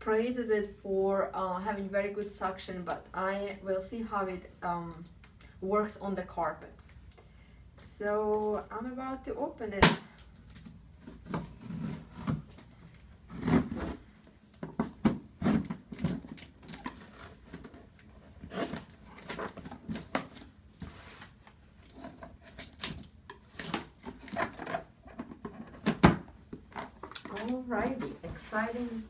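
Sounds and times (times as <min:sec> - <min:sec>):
cardboard ripping and scraping: 0:13.3 - 0:14.1, 0:15.3 - 0:26.0.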